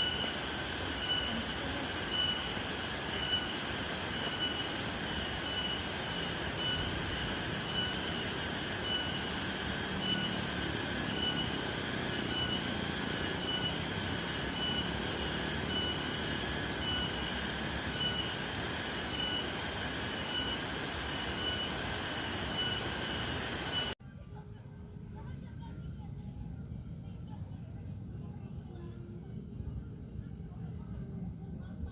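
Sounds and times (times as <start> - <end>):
pulsing insect chorus: 0.0 - 24.0.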